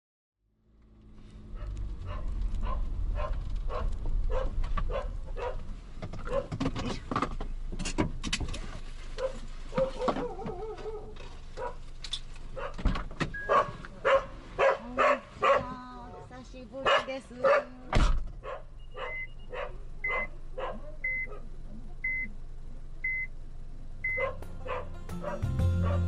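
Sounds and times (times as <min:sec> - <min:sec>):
low rumble: 0:00.4 - 0:05.9
dog barking: 0:01.6 - 0:05.6, 0:06.2 - 0:06.5, 0:09.2 - 0:11.8, 0:12.6 - 0:12.8, 0:13.4 - 0:17.8, 0:18.4 - 0:21.5, 0:24.1 - 0:26.0.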